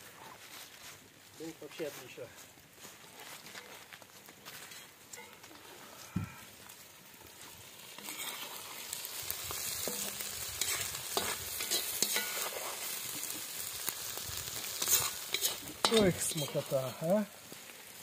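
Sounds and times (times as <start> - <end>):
food sizzling in a pot: 4.5 - 18.0
metal spoon scraping a pot: 8.0 - 8.7, 9.8 - 12.8, 14.8 - 16.7.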